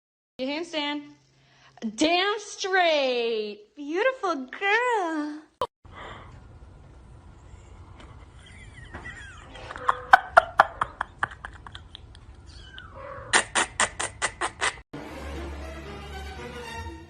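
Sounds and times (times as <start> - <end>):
cat making clicking calls: 12.0 - 14.5.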